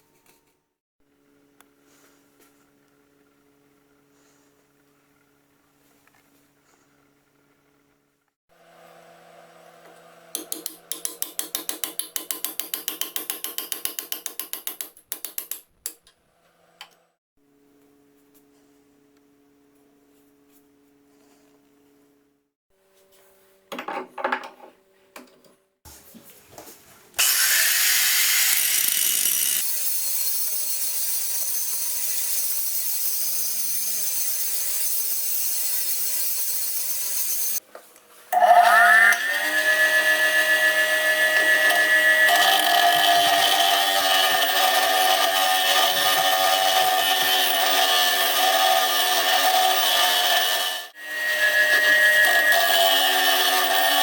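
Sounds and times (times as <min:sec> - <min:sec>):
power tool motor whining: 0:27.2 - 0:30.9, 0:38.4 - 0:54.0.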